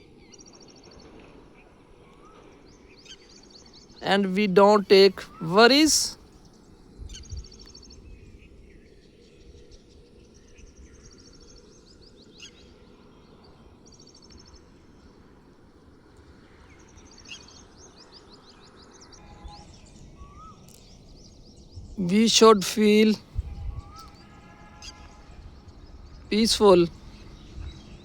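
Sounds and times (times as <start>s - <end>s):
birds chirping: 3.9s - 6.2s, 19.2s - 28.0s.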